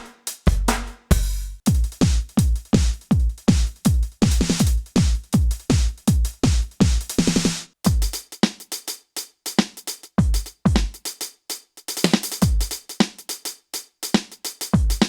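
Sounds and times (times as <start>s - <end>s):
snare hits: 0.0s - 1.2s
electronic kick drum: 0.5s - 8.2s, 10.2s - 11.0s, 12.4s - 12.8s
hi-hat ticks: 7.9s - 15.0s.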